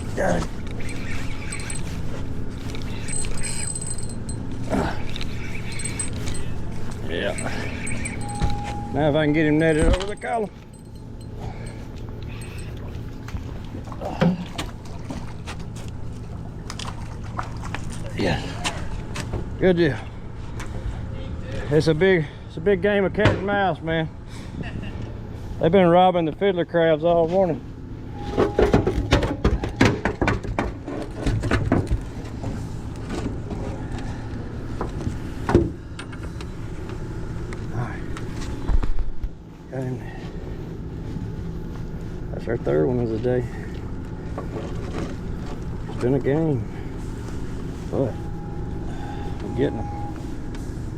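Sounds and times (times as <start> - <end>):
steady low hum: 0.0 - 50.9
light water splashes: 13.2 - 19.0
knocks and clicks in a boat: 28.4 - 34.1.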